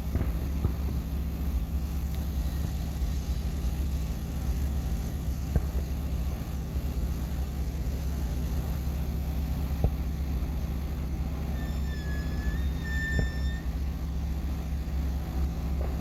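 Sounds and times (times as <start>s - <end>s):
faint sharp pops: 0.0s - 1.1s
steady low rumble: 0.0s - 16.0s
high whistling tone: 11.5s - 13.8s.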